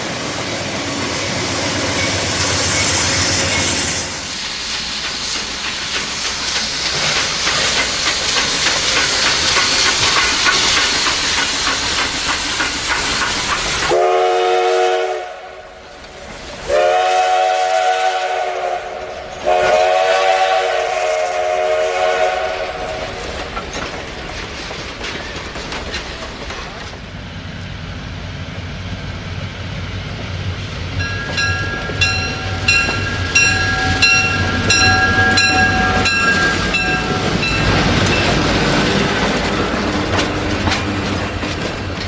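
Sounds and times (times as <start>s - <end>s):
wheels clacking on rails: 0.0s - 15.0s, 16.0s - 42.0s
train rumbling past: 0.0s - 42.0s
train horn blasts: 13.9s - 15.8s, 16.7s - 23.0s.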